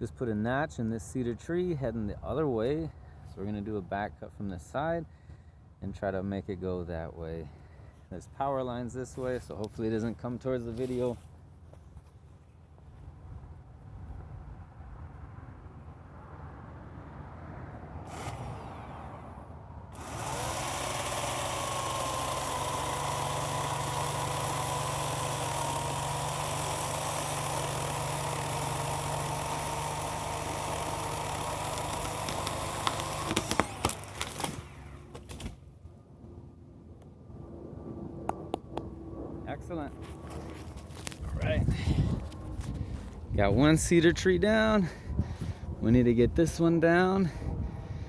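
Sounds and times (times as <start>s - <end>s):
chainsaw cutting trunk: 18.0s - 19.0s, 19.9s - 35.7s
tree cracking and snapping: 30.6s - 35.6s.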